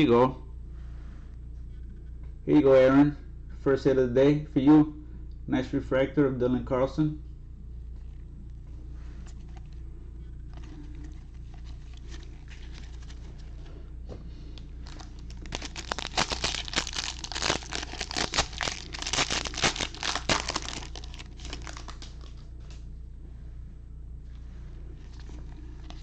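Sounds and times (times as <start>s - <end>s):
foil wrapper crinkling and tearing: 10.6s - 13.5s, 14.8s - 22.4s, 25.0s - 26.0s.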